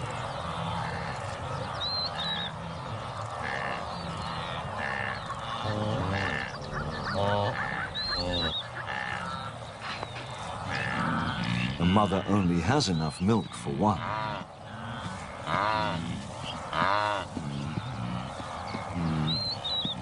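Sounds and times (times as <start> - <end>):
cows honking grunts: 0.0 - 12.7, 13.8 - 20.0.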